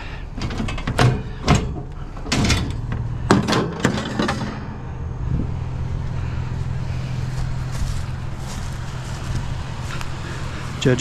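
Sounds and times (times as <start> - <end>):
vehicle engine idling: 0.0 - 11.0
metal knocks and clanks: 0.3 - 5.0.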